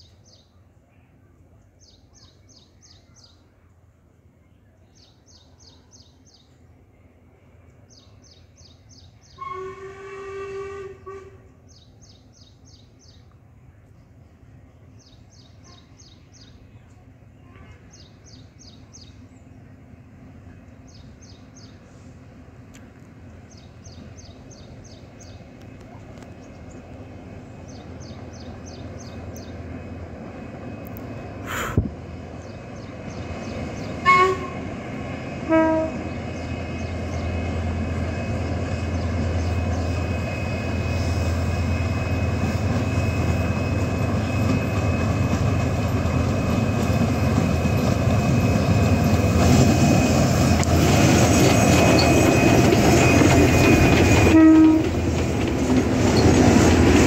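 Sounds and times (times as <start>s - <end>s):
train rumble: 0.8s - 57.0s
train horn toots: 9.3s - 11.6s, 34.0s - 36.2s, 53.6s - 55.1s
birds chirping: 23.2s - 34.6s, 35.8s - 49.7s.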